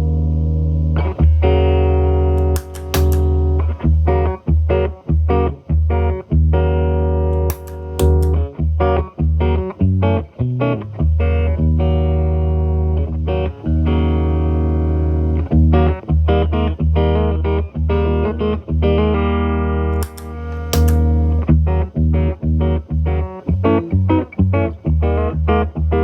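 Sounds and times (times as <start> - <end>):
electric guitar playing: 1.0 - 4.9.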